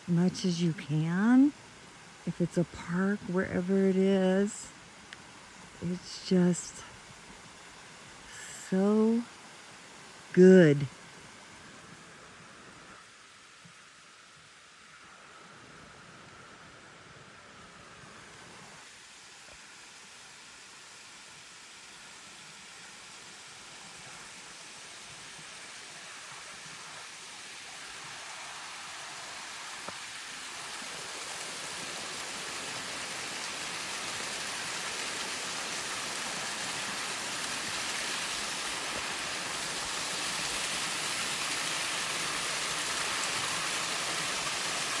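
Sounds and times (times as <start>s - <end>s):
running water rushing: 0.0s - 16.5s, 17.1s - 45.0s.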